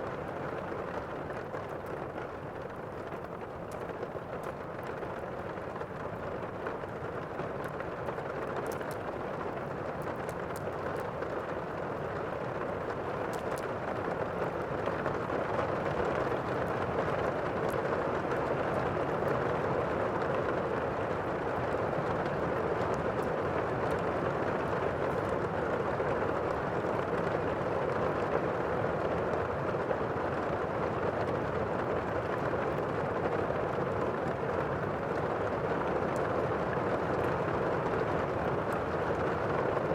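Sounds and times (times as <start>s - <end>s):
faint ticks: 0.6s - 15.1s.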